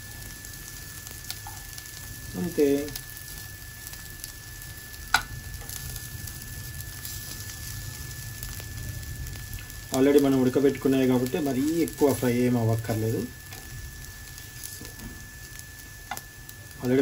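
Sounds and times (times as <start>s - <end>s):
patties sizzling in oil: 0.0s - 17.0s
spatula tapping pan: 5.1s - 5.3s.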